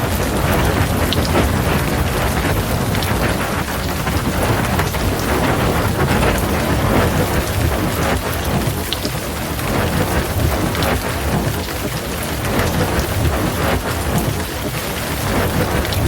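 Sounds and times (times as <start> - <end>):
heavy rain pouring: 0.0 - 16.0
low rumble of thunder: 0.0 - 16.0
raindrops ticking: 0.0 - 16.0.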